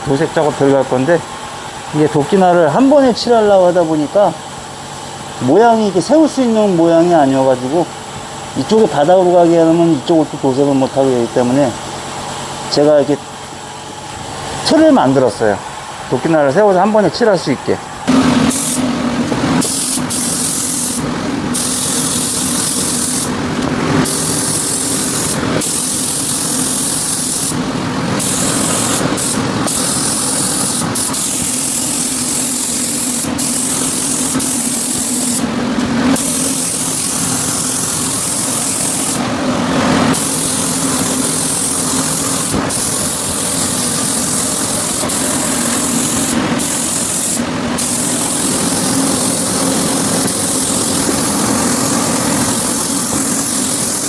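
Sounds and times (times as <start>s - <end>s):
steady hum: 0.0s - 54.0s
paint spray gun hissing: 18.1s - 54.0s.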